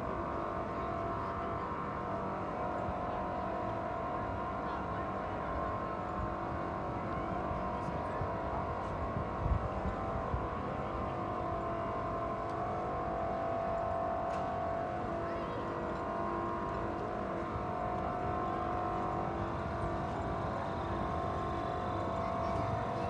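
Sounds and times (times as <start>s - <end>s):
engine running steadily: 16.7s - 23.0s.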